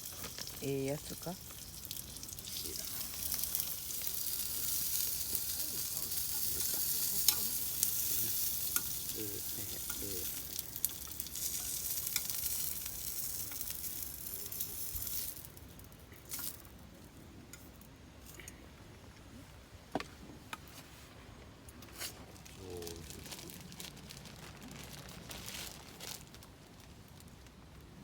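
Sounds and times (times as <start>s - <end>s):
food sizzling in a pan: 0.0s - 15.6s.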